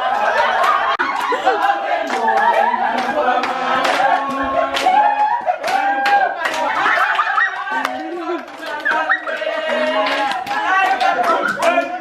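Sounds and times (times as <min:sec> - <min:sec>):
group singing: 0:00.0 - 0:12.0
people talking: 0:09.7 - 0:12.0.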